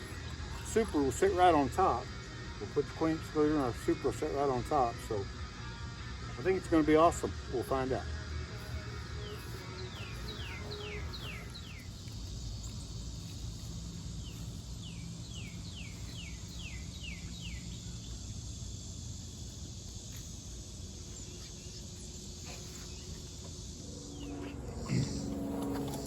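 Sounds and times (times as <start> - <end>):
low outdoor rumble: 7.4 - 26.0
songbird whistling: 8.7 - 13.0, 14.2 - 18.3.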